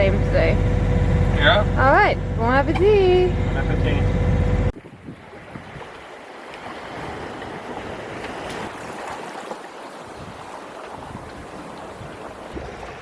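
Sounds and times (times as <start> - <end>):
low hum: 0.0 - 4.8
water rushing past a boat: 0.0 - 13.0
wind on microphone: 4.7 - 9.1, 10.0 - 13.0.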